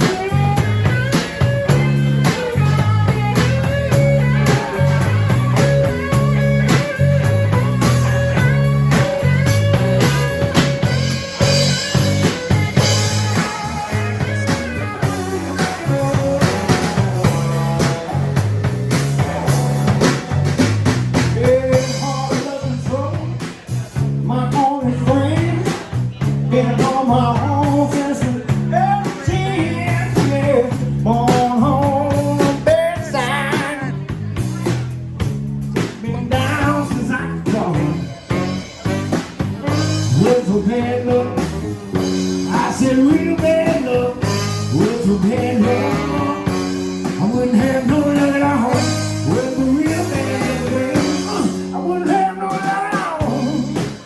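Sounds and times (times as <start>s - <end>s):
electric guitar lines: 0.0s - 22.8s
blues band playing: 0.0s - 54.0s.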